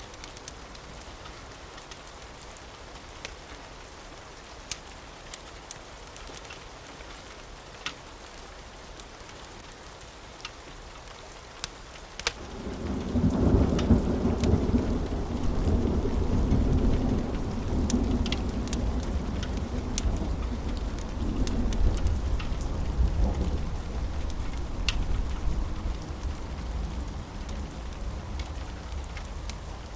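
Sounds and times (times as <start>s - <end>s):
steady rain: 0.0s - 29.9s
wood fire crackling: 0.0s - 29.9s
low thunder rumbling: 12.4s - 29.9s.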